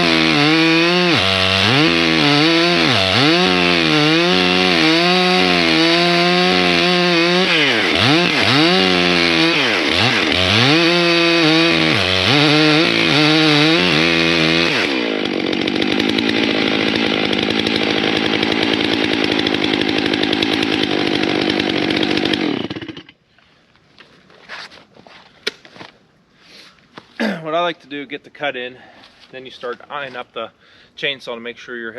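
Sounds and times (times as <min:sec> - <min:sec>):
chainsaw cutting wood: 0:00.0 - 0:23.2.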